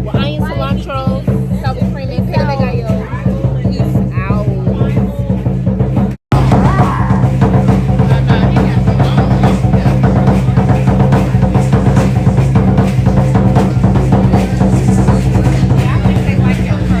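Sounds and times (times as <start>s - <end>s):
bass drum: 0.0s - 17.0s
low bass notes: 0.0s - 17.0s
snare drum: 5.9s - 17.0s.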